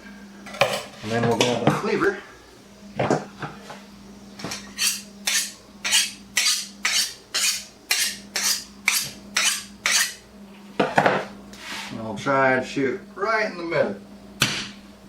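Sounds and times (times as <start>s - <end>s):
steady low hum: 0.0s - 15.0s
cleaver blade scraping metal: 4.6s - 10.2s.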